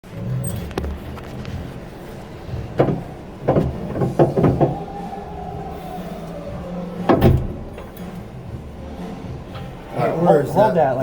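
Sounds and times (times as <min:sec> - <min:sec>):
low hum: 0:00.0 - 0:10.5
sharp knocks: 0:02.7 - 0:05.3.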